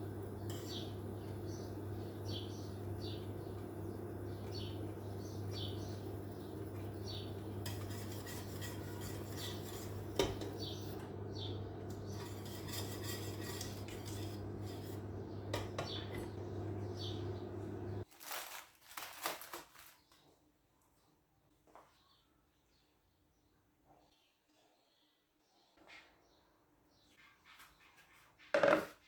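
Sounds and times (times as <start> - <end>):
steady low hum: 0.0 - 18.0
utensils clinking against dishes: 6.8 - 16.8.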